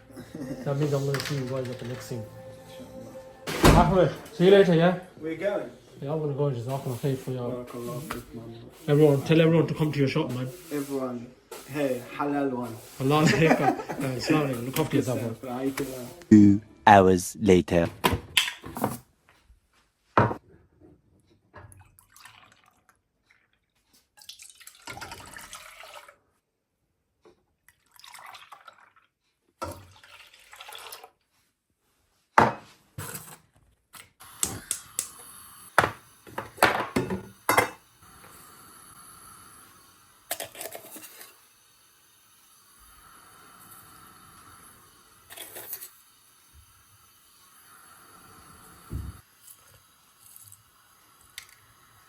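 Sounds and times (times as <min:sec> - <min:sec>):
water dripping and splashing: 0:21.8 - 0:23.6, 0:24.2 - 0:26.2.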